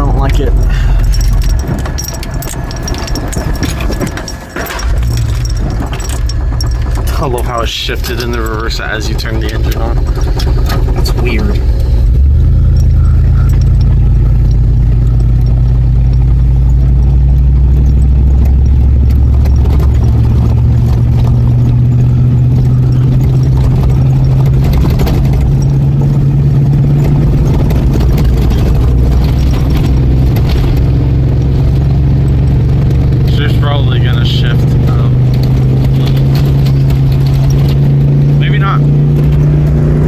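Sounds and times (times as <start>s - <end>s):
truck engine running: 0.0s - 40.0s.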